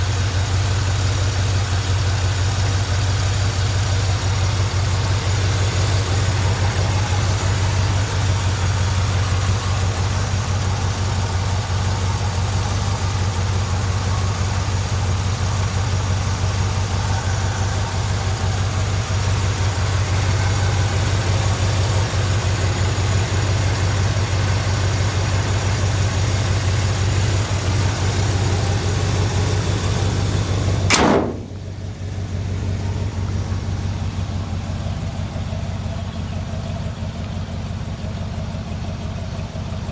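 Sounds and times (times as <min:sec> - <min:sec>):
truck engine idling: 0:00.0 - 0:39.9
sharp click: 0:30.9 - 0:31.6.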